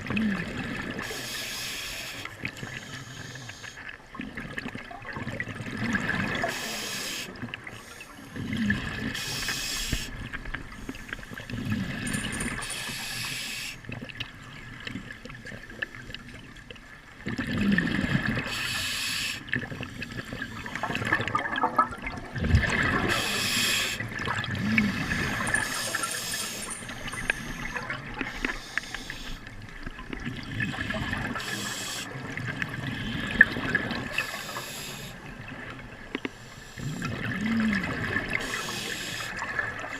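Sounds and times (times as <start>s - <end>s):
water rushing and splashing: 19.4s - 39.9s.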